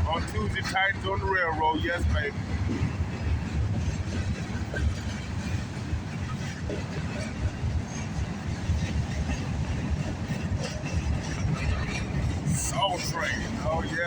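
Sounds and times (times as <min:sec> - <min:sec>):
knocks and clanks of train cars: 0:00.0 - 0:14.0
train wheels rumbling on rails: 0:00.0 - 0:14.0.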